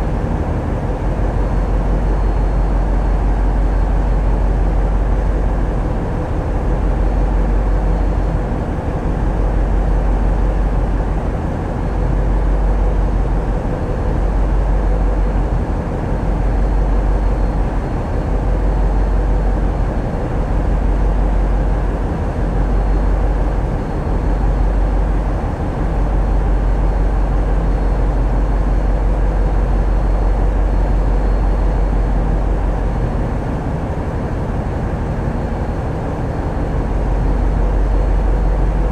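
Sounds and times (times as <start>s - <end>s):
boat diesel engines rumbling: 0.0s - 38.9s.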